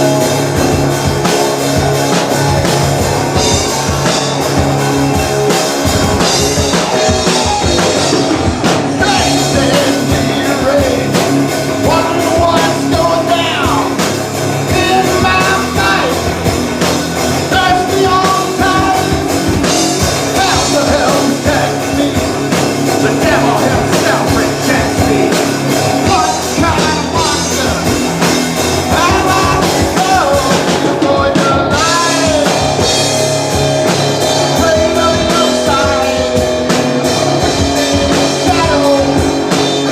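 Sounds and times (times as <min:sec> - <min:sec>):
drum kit: 0:00.0 - 0:39.9
live rock band playing: 0:00.0 - 0:39.9
person singing: 0:00.0 - 0:39.9.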